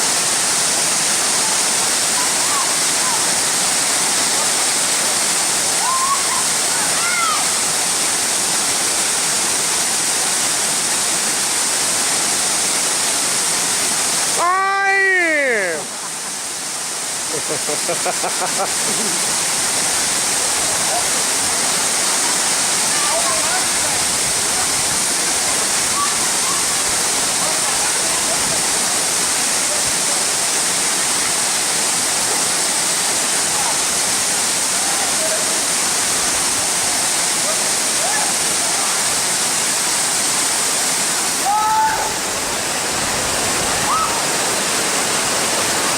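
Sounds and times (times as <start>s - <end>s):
waterfall rushing: 0.0s - 45.9s
voice calling out: 14.3s - 15.9s.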